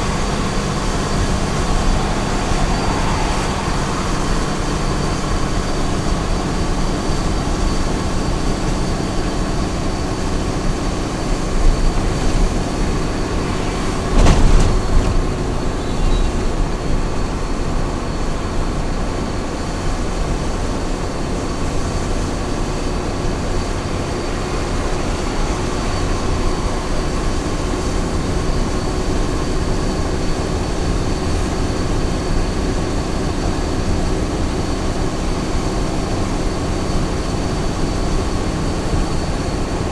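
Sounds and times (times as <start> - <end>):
truck engine and road noise: 0.0 - 39.9
thump: 14.0 - 15.2.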